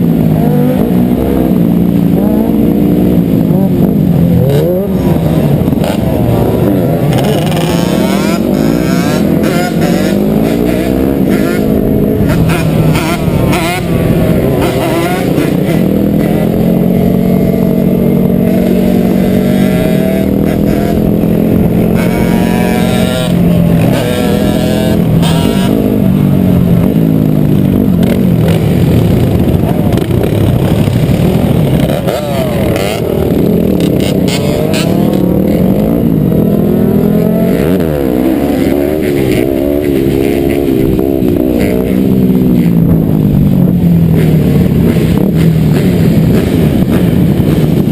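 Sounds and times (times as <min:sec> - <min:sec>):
dirt bike engines revving: 0:00.0 - 0:47.9.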